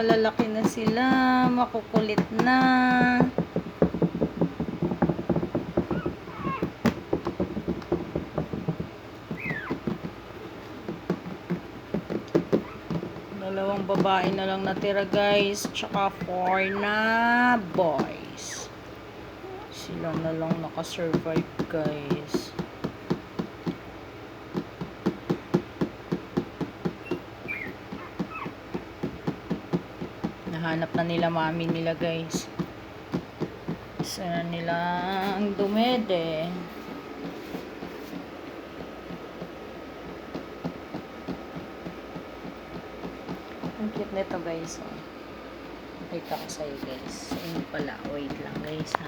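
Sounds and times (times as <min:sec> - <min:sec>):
rhythmic knocking: 0:00.0 - 0:18.6, 0:24.5 - 0:49.0
puppies scratching and scrabbling: 0:00.0 - 0:18.8, 0:26.8 - 0:45.0, 0:46.0 - 0:49.0
puppies whimpering: 0:05.9 - 0:06.7, 0:09.4 - 0:09.8, 0:27.0 - 0:28.6
short high squeaks: 0:09.4 - 0:09.8, 0:27.1 - 0:28.5.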